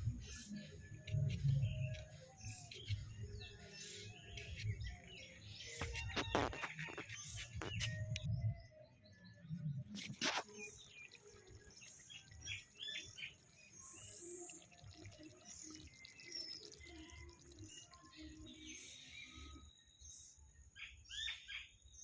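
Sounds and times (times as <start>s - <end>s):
small birds chirping: 0.0s - 8.3s, 9.9s - 22.0s.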